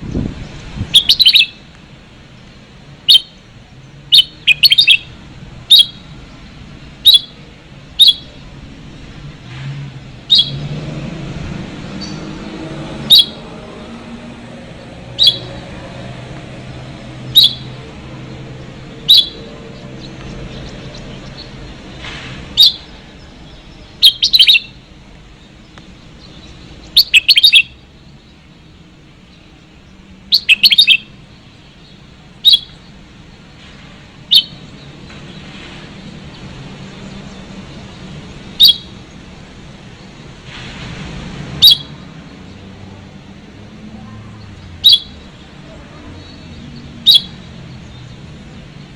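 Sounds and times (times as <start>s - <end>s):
bulbuls chirping: 0.0s - 48.9s
bird multi-note phrases: 0.9s - 1.6s, 4.0s - 8.6s, 11.4s - 24.9s, 25.6s - 27.8s, 30.3s - 31.1s, 31.7s - 32.8s, 38.6s - 39.0s, 44.0s - 48.9s.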